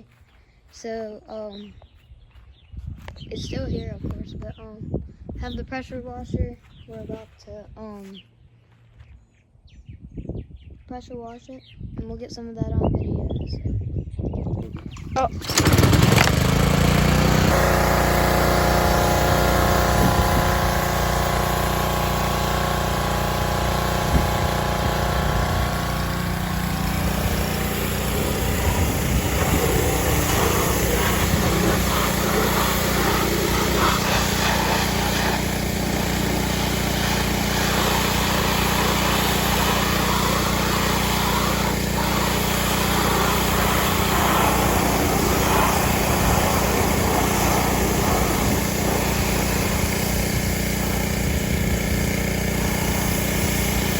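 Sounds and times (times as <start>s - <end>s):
pressure washer engine running: 14.7s - 53.9s.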